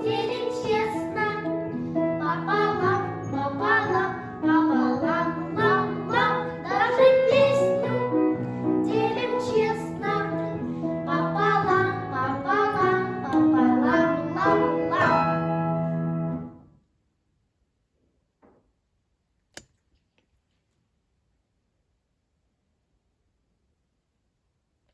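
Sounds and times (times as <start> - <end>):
children singing: 0.0 - 1.5, 2.2 - 8.2, 8.8 - 15.4
sharp click: 19.4 - 20.3.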